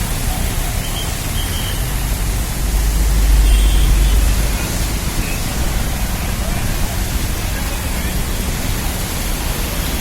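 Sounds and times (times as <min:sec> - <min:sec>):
heavy rain and floodwater rushing: 0:00.0 - 0:10.0.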